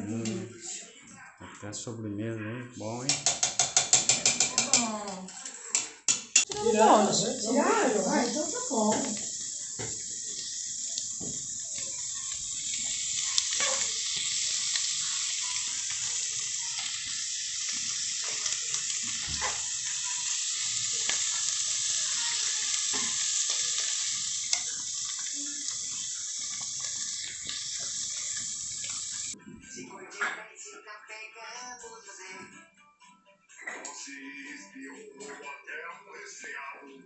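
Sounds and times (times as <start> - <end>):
food sizzling in a frying pan: 2.9 - 29.4.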